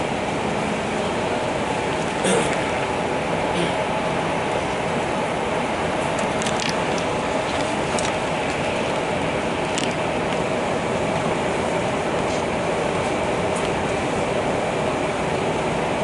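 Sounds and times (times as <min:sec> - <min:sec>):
train rumbling: 0:00.0 - 0:16.0
sharp clicks and rattles: 0:06.1 - 0:08.6, 0:09.6 - 0:10.0.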